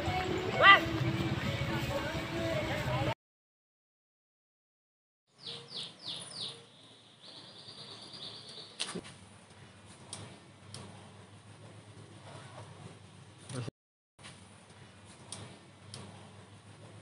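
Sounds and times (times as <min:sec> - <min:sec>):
small bird chirping and trilling: 0:05.3 - 0:08.8.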